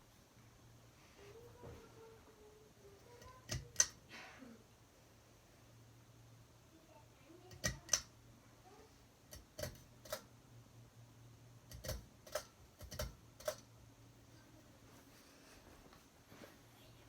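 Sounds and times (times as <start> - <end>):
low steady hum: 0.0 - 17.0
sharp clicks: 3.2 - 4.0, 7.5 - 8.1, 9.3 - 10.3.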